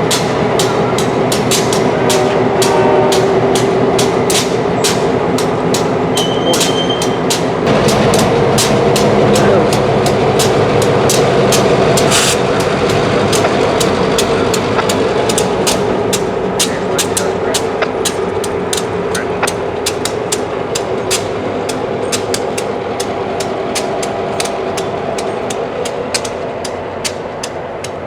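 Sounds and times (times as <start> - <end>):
freight train rumbling: 0.0 - 28.0
wheels clicking over rail joints: 0.0 - 28.0
brief high tone: 6.1 - 7.2.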